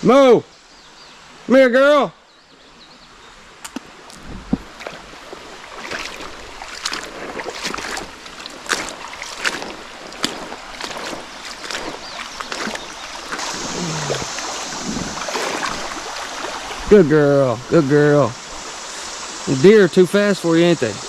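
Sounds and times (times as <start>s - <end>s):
creek running water: 0.0s - 21.0s
footsteps splashing through water: 3.6s - 17.0s.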